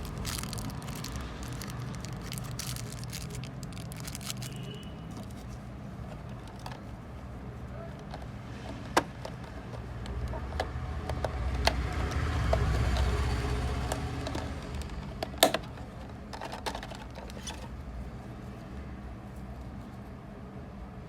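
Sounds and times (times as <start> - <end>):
clicks and taps of packaging: 8.0 - 17.6.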